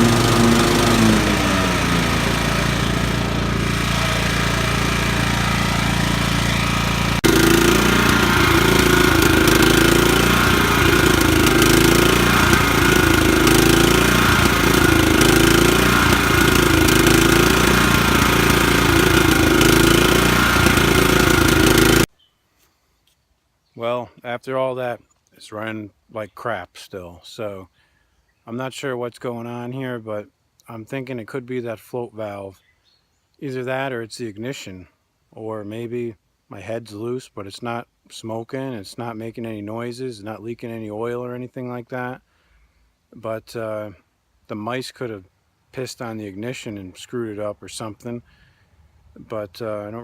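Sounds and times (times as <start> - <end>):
mower engine running rough: 0.0 - 22.1.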